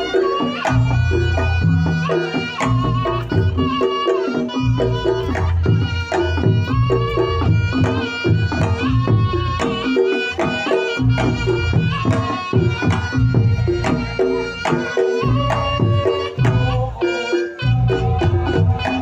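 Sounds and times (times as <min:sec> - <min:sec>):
hand drumming: 0:00.0 - 0:19.0
reedy wind instrument melody: 0:00.0 - 0:19.0.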